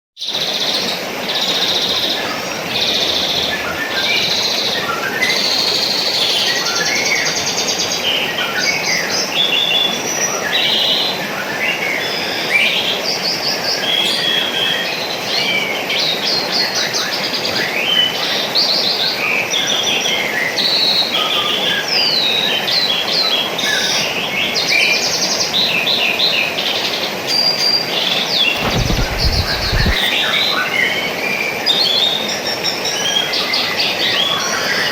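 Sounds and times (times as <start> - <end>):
rushing water: 0.4 - 34.9
low thumps: 28.6 - 30.1.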